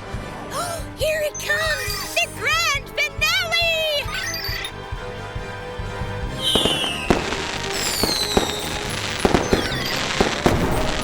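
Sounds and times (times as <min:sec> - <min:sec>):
background music: 0:00.0 - 0:11.0
fireworks bangs with crackling: 0:05.0 - 0:11.0
whistling rockets: 0:05.8 - 0:11.0.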